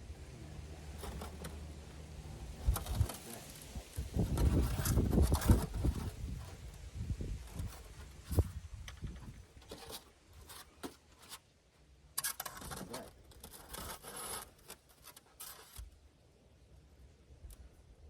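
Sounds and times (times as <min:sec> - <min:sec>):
scraping and cutting insulation: 0:00.8 - 0:01.8, 0:02.5 - 0:11.4, 0:12.2 - 0:15.9.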